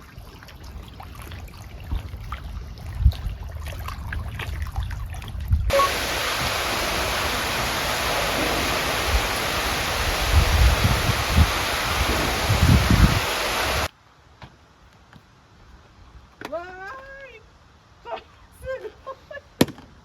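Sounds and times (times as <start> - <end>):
wind rumble on microphone: 0.0 - 13.9
hiss of sea and wind: 5.7 - 13.9.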